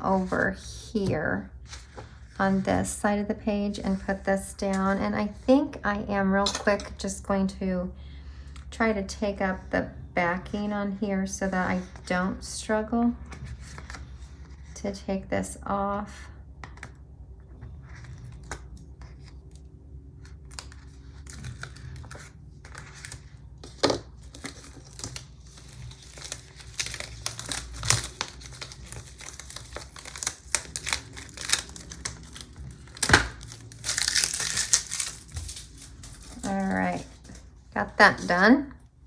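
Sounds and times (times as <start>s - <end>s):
paper crinkling: 17.7s - 37.6s.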